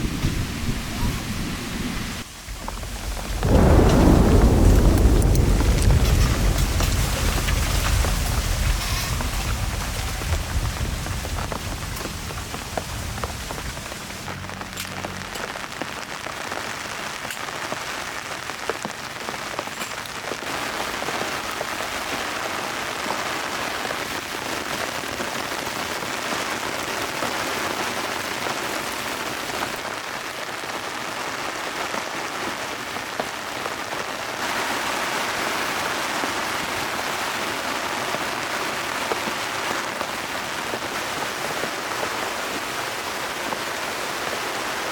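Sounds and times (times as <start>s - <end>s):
low rumble: 0.0s - 15.6s
heavy rain falling: 0.0s - 44.9s
raindrops striking close by: 0.0s - 44.9s.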